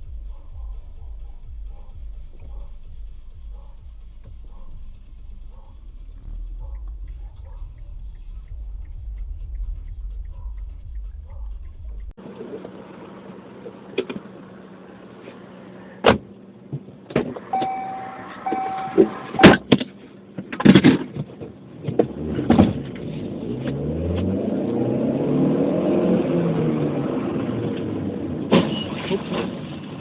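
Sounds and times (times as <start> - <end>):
car road noise: 0.0 - 30.0
car horn: 17.5 - 19.6, 28.6 - 29.0
engine revving: 22.0 - 28.5.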